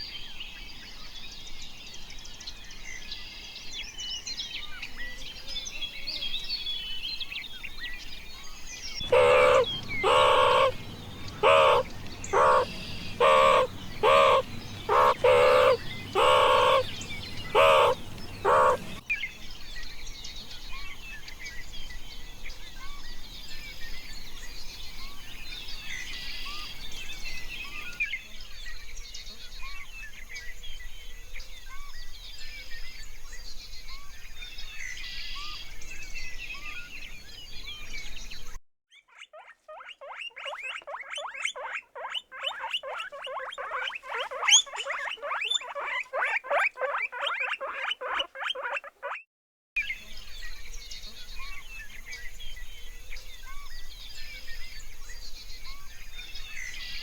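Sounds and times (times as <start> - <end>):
small birds chirping: 7.4 - 19.6, 37.3 - 49.2
farm animal calling: 9.0 - 19.0, 39.8 - 49.2.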